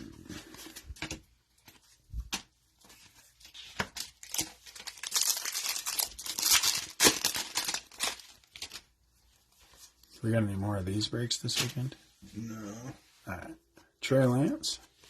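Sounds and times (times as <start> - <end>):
wrapper rustling: 2.8 - 10.2
card pack wrapper tearing: 4.0 - 8.8.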